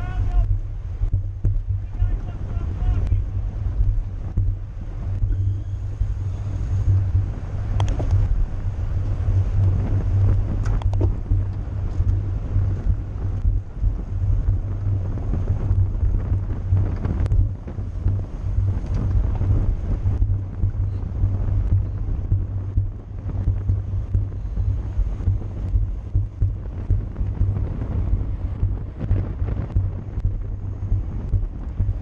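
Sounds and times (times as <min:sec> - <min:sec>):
wind rumbling on microphone: 0:00.0 - 0:32.0.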